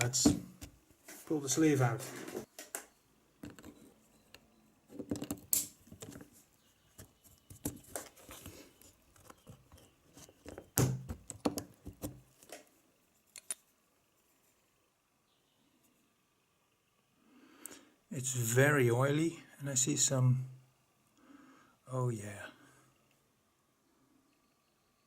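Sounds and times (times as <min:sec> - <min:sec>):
metallic clicks of engine parts: 0:13.3 - 0:13.7.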